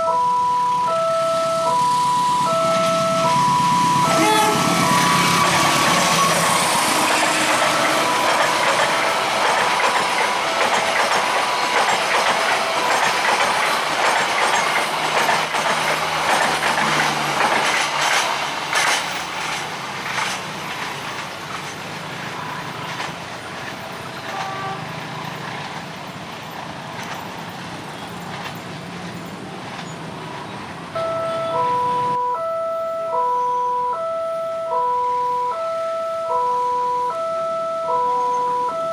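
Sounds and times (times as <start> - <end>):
level crossing warning chime: 0.0 - 16.8, 31.0 - 38.9
train wheels clattering over rail joints: 4.5 - 30.8.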